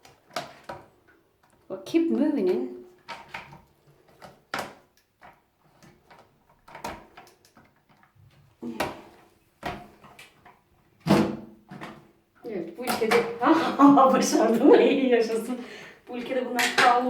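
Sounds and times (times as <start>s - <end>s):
toilet flush parts knocking and clicking: 0.0s - 8.2s, 12.7s - 14.7s.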